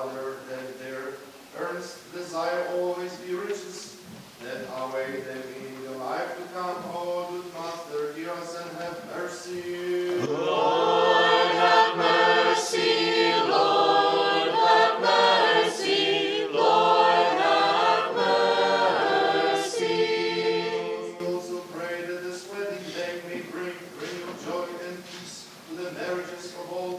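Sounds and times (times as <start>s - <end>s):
choir singing a cappella: 9.1s - 24.7s.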